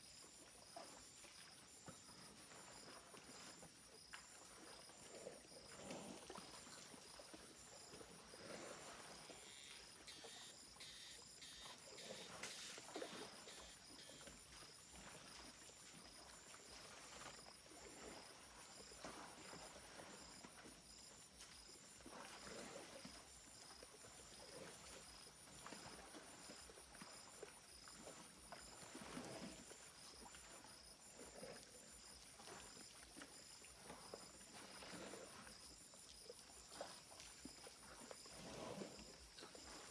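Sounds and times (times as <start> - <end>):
insects buzzing: 9.2 - 14.3.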